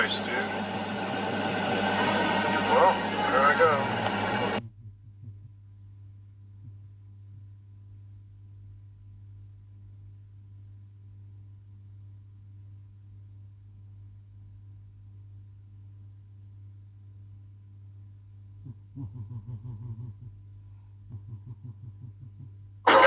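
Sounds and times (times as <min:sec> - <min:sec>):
steady low hum: 0:00.0 - 0:07.5, 0:18.4 - 0:23.0.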